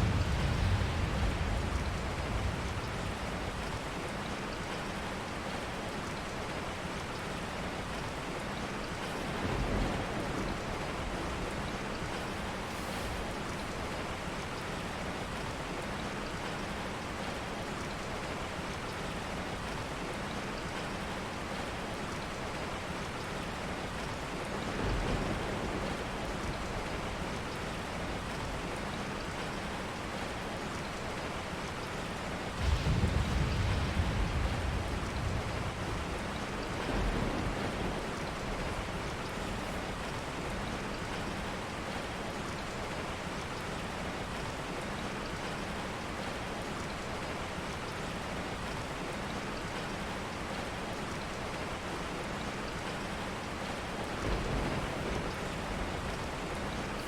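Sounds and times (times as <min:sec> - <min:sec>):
steady rain: 0:00.0 - 0:57.0
low rumbles: 0:32.6 - 0:39.8.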